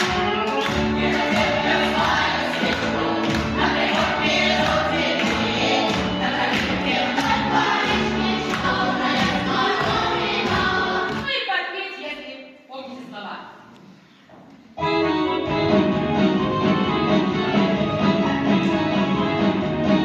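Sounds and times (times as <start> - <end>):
choir singing: 0.6 - 11.3.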